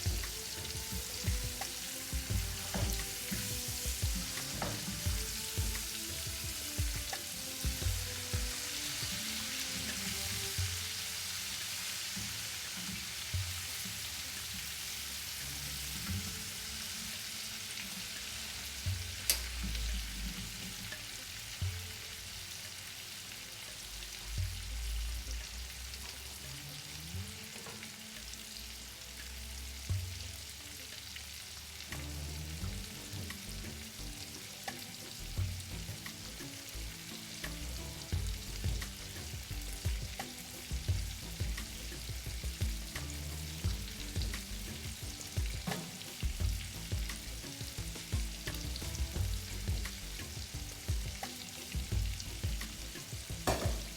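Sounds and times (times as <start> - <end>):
food sizzling in a pan: 0.0 - 53.9
low knocks from handling: 53.5 - 53.9.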